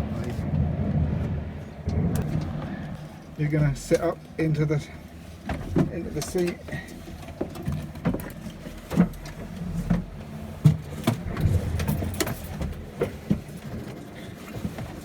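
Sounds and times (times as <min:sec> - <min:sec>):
low rumble: 0:11.0 - 0:14.1.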